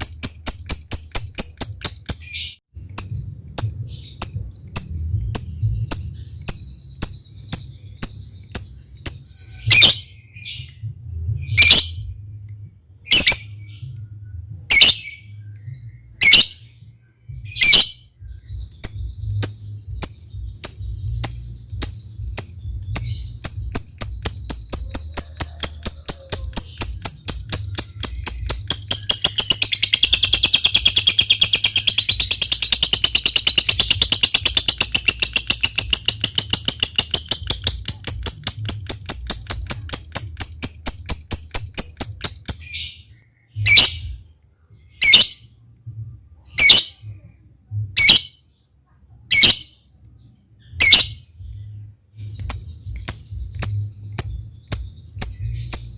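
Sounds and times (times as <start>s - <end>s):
lovebird chirping and chattering: 0.0s - 12.5s, 13.1s - 16.8s, 17.4s - 45.5s, 46.5s - 47.2s, 48.0s - 48.6s, 49.3s - 55.9s.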